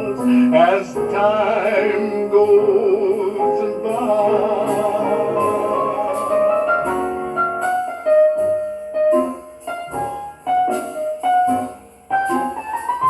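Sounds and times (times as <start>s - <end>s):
person singing: 0.0s - 7.0s
solo piano playing: 0.0s - 13.0s.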